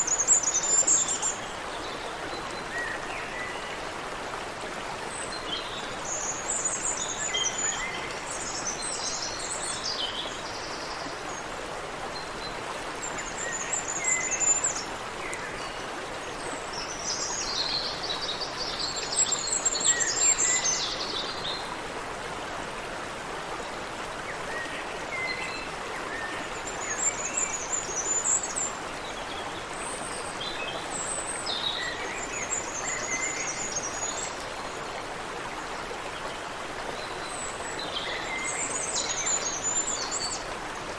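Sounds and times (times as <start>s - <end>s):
stream rushing: 0.0s - 40.9s.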